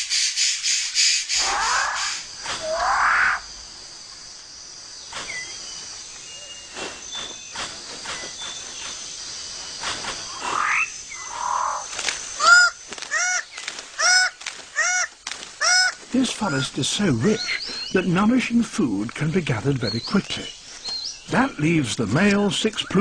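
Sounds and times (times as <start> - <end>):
bird rising call: 1.3 - 3.5, 10.2 - 18.0.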